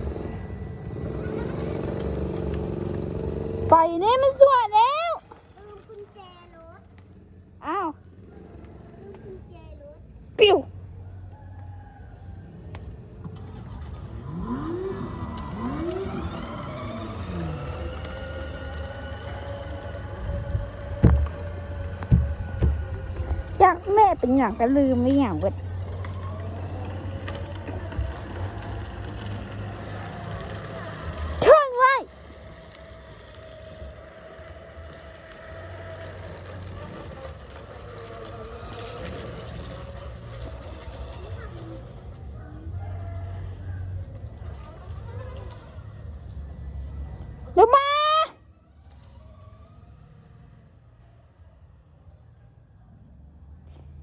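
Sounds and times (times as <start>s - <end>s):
electric motor whine: 0.0s - 6.2s, 14.0s - 47.4s.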